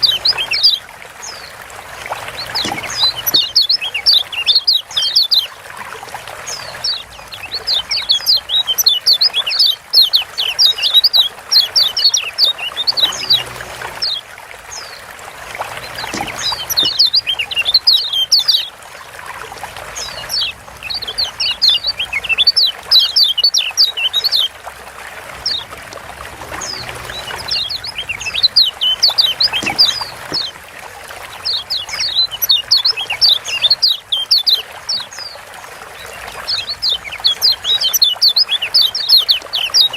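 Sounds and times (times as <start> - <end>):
water trickling: 0.0 - 39.9
bird high quick chirps: 15.9 - 18.7.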